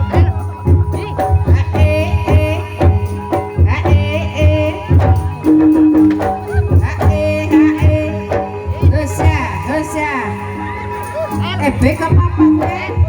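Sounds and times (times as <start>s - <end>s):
hand-drum strokes: 0.0s - 10.2s
ringing pitched percussion: 0.0s - 13.0s.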